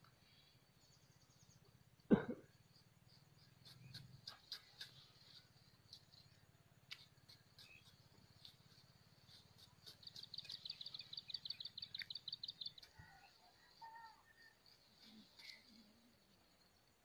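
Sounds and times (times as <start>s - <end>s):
distant songbird trill: 0.3s - 17.0s
soft bird calls: 3.1s - 16.3s.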